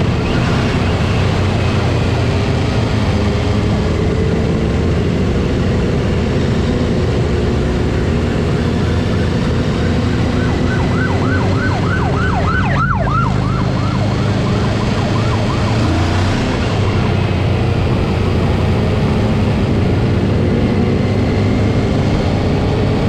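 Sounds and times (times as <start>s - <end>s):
motorcycle engines droning: 0.0s - 23.0s
police siren yelping: 8.5s - 19.7s.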